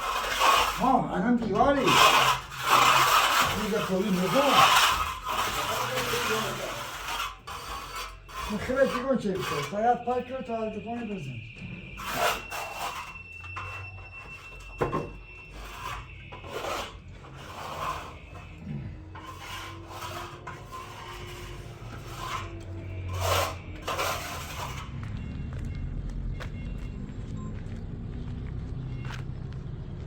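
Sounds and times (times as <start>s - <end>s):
rasping strokes on a surface: 0.0s - 14.0s, 15.4s - 25.1s.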